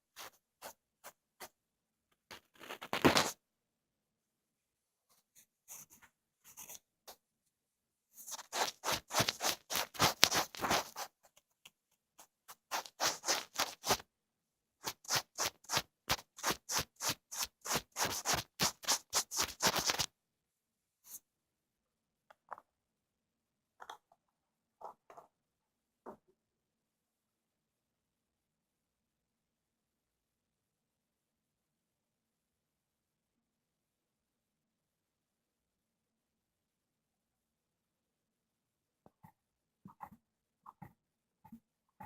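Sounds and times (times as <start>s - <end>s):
tool scratching on microphone: 8.2s - 11.2s, 12.5s - 14.0s, 14.8s - 20.1s.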